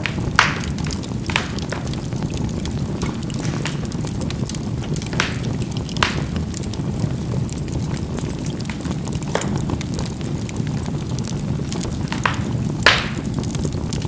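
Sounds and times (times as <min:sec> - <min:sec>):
charcoal popping: 0:00.0 - 0:14.0
faint crackling ticks: 0:00.0 - 0:14.0
fire rumbling: 0:00.0 - 0:14.0.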